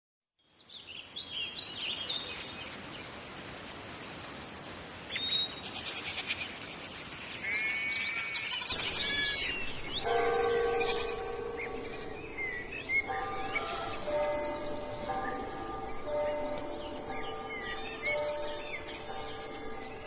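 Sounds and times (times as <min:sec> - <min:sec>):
steady outdoor hiss: 0:00.4 - 0:20.0
birds chirping and calling: 0:04.5 - 0:20.0.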